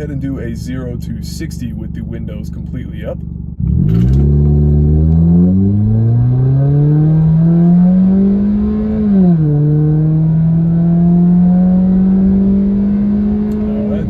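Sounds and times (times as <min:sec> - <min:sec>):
car engine accelerating from inside: 0:03.5 - 0:14.0.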